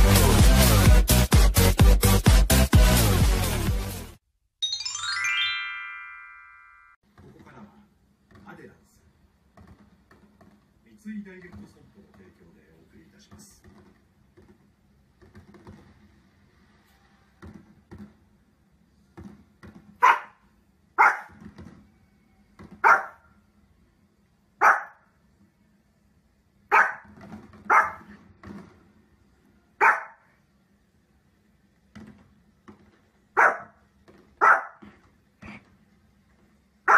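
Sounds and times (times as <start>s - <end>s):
dog barking: 20.0s - 20.4s, 21.0s - 21.4s, 22.8s - 23.3s, 24.6s - 25.0s, 26.7s - 28.1s, 29.8s - 30.3s, 33.4s - 33.8s, 34.4s - 34.8s.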